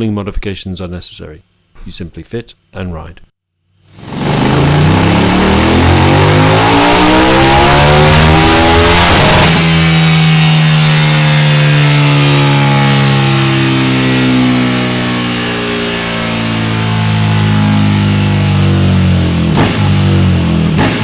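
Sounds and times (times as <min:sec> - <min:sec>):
motorcycle engine revving: 0:03.7 - 0:21.0.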